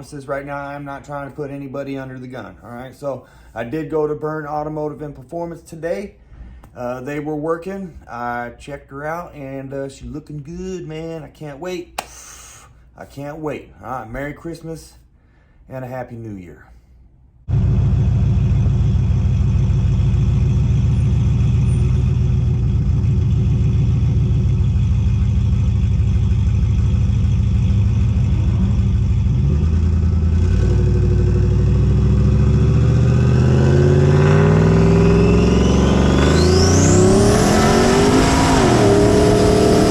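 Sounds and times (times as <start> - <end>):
high whine: 17.5 - 39.9
vehicle engine accelerating: 17.5 - 39.9.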